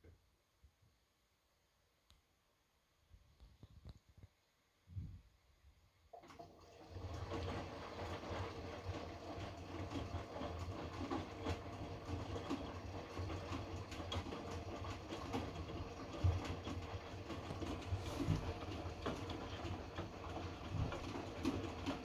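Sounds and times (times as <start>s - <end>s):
washing machine motor rumble: 6.2s - 22.0s.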